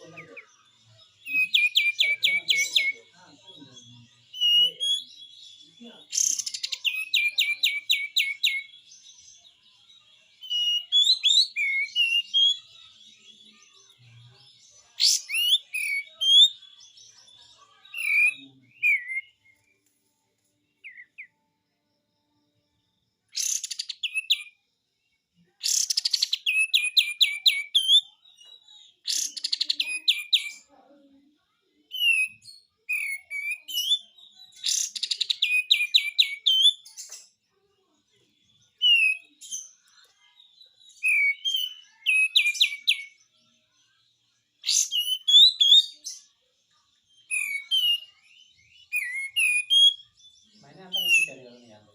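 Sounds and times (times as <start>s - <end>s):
bird singing rapid strokes: 6.1s - 8.6s, 23.4s - 24.4s.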